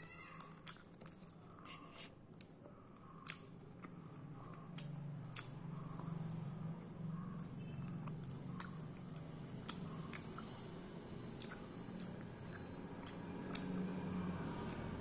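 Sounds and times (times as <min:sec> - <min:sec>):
chewing and biting food: 0:00.3 - 0:01.8, 0:02.4 - 0:10.6, 0:11.4 - 0:15.0
wet mouth clicks: 0:11.4 - 0:13.7.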